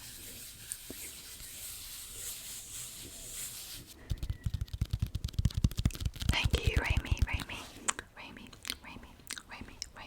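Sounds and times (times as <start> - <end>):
soft rubbing hiss: 0.0 - 9.2
rapid tapping: 4.1 - 7.5.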